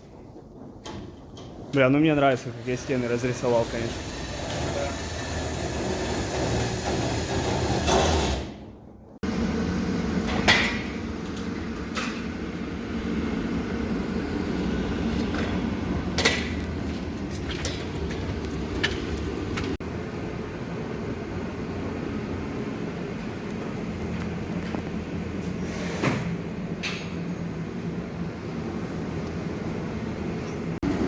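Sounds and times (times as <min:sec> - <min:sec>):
low machinery hum: 0:09.0 - 0:31.0.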